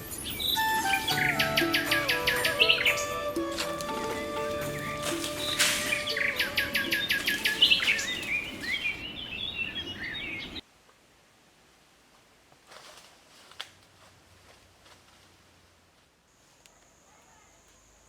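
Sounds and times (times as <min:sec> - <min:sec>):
birds chirping: 0:00.0 - 0:10.6.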